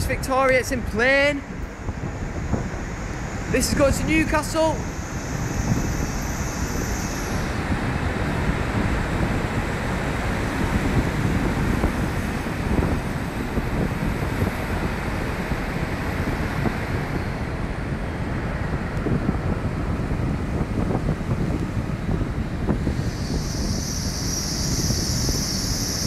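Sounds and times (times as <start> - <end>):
wind buffeting microphone: 0.0 - 26.0
faint falling whine: 0.4 - 10.4, 22.6 - 26.0
train running: 0.7 - 26.0.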